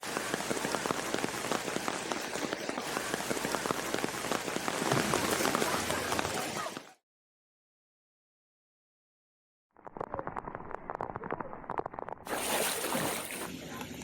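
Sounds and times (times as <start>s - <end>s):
heavy rain pouring: 0.0s - 6.9s.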